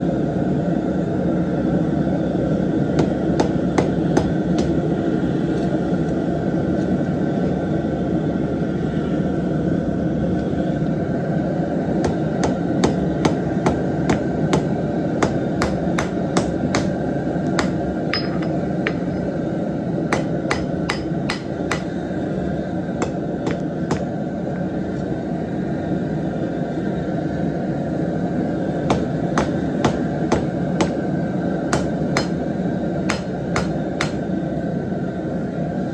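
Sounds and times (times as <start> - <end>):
hammer striking metal on anvil: 3.0 - 4.9, 12.0 - 19.4, 20.1 - 22.1, 23.0 - 24.1, 28.9 - 31.1, 31.7 - 34.3.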